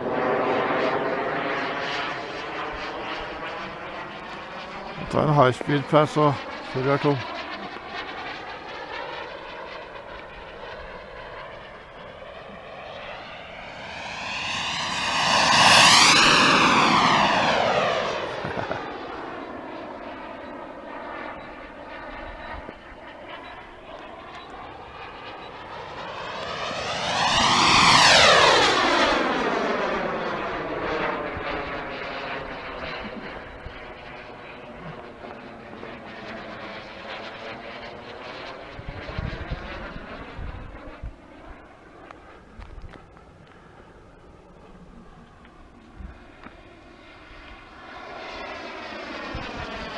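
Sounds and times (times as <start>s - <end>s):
model jet engine whine passing: 0.0s - 49.9s.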